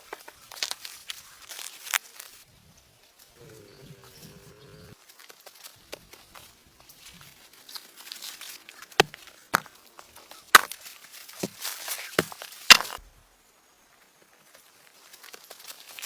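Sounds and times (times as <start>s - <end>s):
axe chopping wood: 9.0s - 9.7s, 10.6s - 10.8s, 12.2s - 13.0s.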